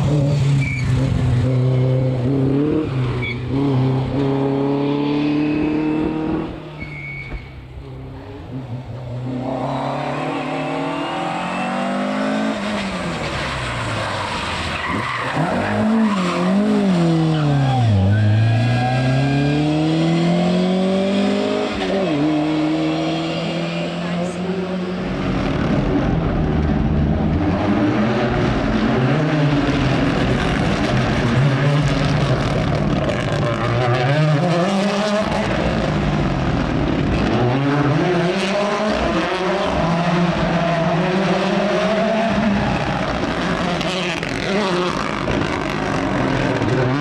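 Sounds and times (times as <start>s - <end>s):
car engine revving: 0.0s - 6.7s, 7.9s - 47.0s
tyres skidding: 6.3s - 26.6s.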